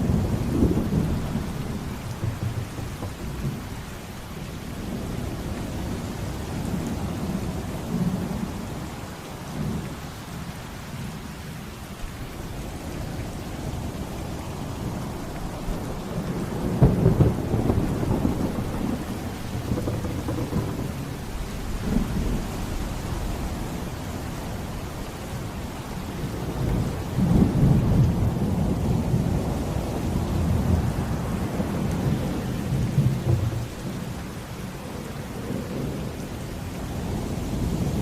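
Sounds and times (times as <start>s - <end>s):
rolling thunder: 0.0s - 6.0s, 15.5s - 24.0s, 26.0s - 29.6s, 31.5s - 34.2s
rain falling: 0.0s - 38.0s.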